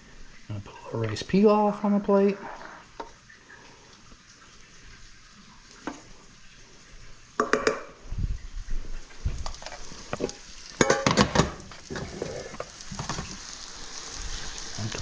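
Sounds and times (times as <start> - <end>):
serving spoon scraping a pot: 10.0 - 13.4.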